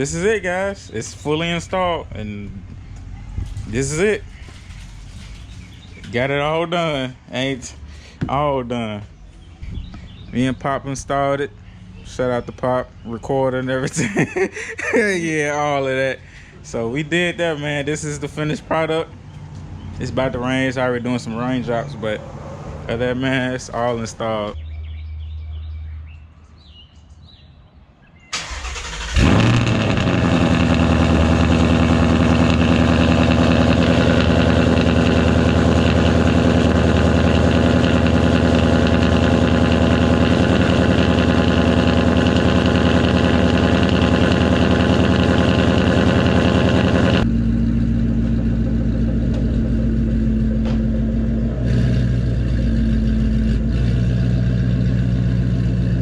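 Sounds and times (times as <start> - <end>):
car engine starting and idling: 0.0 - 8.8, 28.3 - 56.0.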